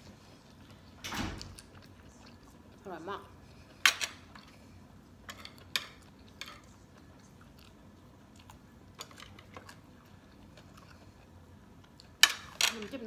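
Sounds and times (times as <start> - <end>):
person chewing food: 0.0 - 12.6
food crunching: 3.5 - 12.6.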